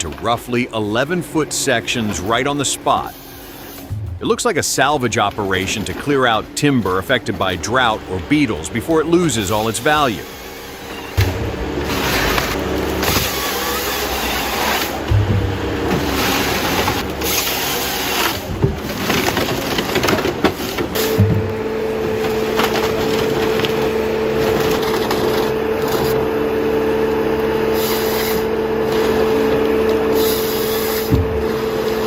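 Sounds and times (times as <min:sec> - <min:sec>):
high engine note: 0:00.0 - 0:32.0
wood cracking and scraping: 0:00.0 - 0:32.0.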